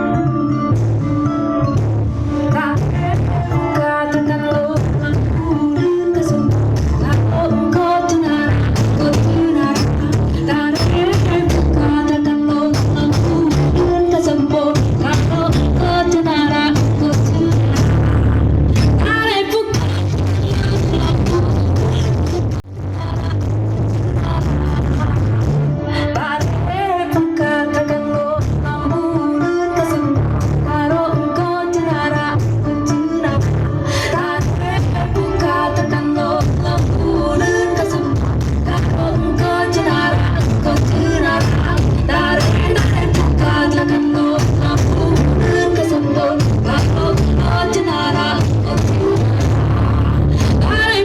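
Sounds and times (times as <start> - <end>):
person singing over heavy bass: 2.4 - 27.4, 32.7 - 51.0
loud music over sound system: 6.5 - 12.1, 12.8 - 27.0, 32.4 - 51.0.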